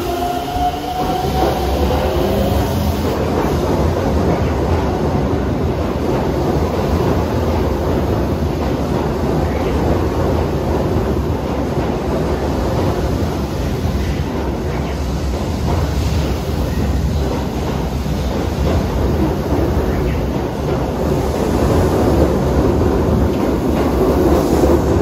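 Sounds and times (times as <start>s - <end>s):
electric train rumbling past: 0.0s - 25.0s.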